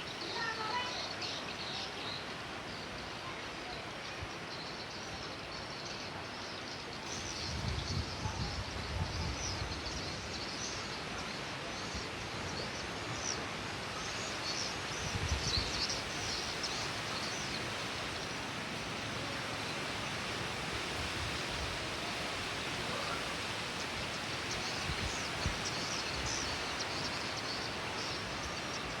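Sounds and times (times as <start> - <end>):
steady rain: 0.0 - 29.0
wind gusts rumbling: 7.2 - 10.3.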